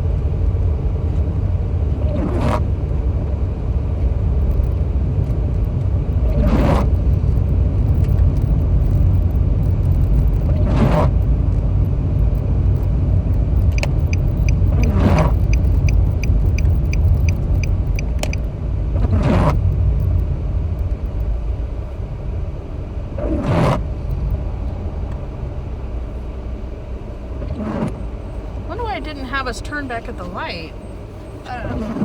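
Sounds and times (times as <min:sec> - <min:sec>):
road rumble inside car: 0:00.0 - 0:32.0
windshield wipers squeaking: 0:02.0 - 0:11.8, 0:12.4 - 0:20.2, 0:27.4 - 0:32.0
turn signal ticking: 0:02.8 - 0:22.8, 0:23.8 - 0:25.3, 0:27.4 - 0:32.0.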